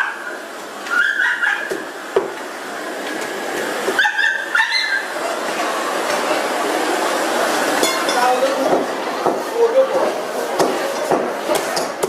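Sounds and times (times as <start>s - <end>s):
dogs whimpering and yelping: 0.9s - 1.7s, 4.0s - 5.1s.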